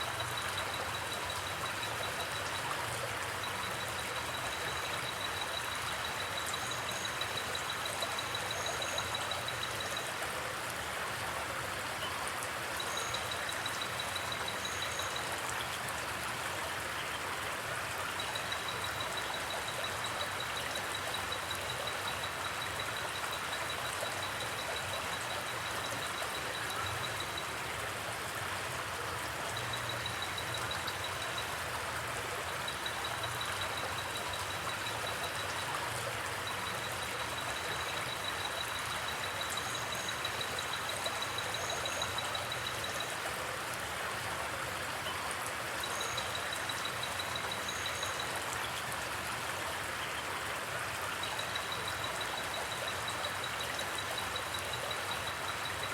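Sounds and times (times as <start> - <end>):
faint high rapid ticking: 0.0 - 10.1
water rushing: 0.0 - 55.9.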